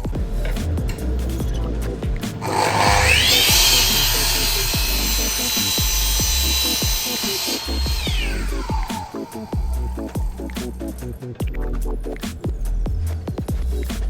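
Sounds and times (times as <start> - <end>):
background music with beat: 0.0 - 14.0
power tool working wood: 2.4 - 10.7.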